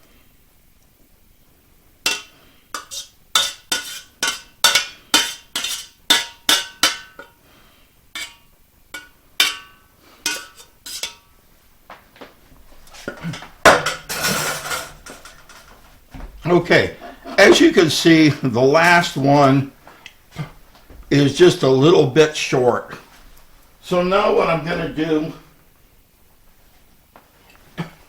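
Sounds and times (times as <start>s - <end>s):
utensil clinking against pot: 2.1s - 7.4s, 8.2s - 11.3s, 13.1s - 15.7s.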